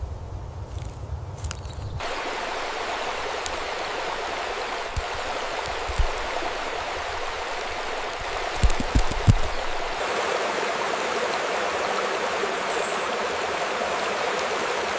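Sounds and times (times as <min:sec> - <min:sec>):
soft low thumps: 0:02.0 - 0:10.0
stream rushing: 0:02.0 - 0:14.9.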